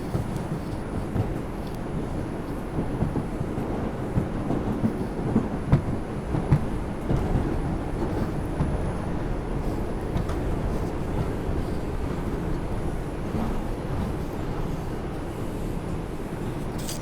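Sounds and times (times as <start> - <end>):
subway wheels rumbling on rail: 0.0 - 17.0.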